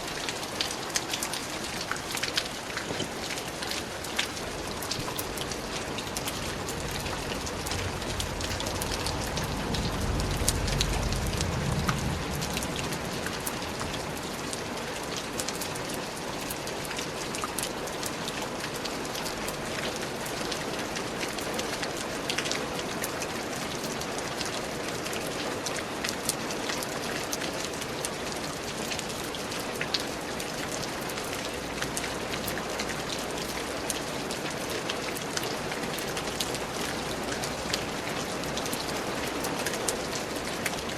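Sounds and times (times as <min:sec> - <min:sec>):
heavy rain: 0:00.0 - 0:40.9
low rumble: 0:05.2 - 0:14.2.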